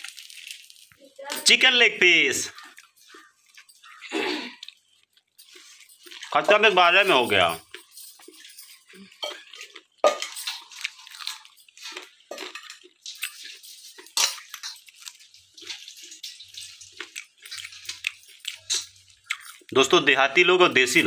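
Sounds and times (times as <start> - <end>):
chewing on a chicken bone: 2.5 - 6.6, 7.6 - 19.8.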